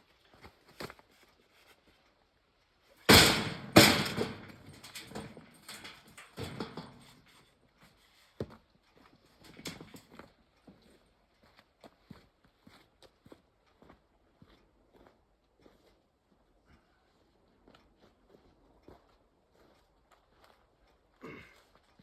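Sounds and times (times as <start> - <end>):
heavy thuds: 3.1 - 7.2.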